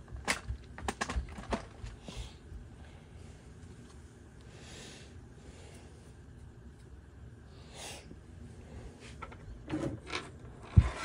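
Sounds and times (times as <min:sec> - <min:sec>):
plastic parts rustling: 0:00.0 - 0:02.0.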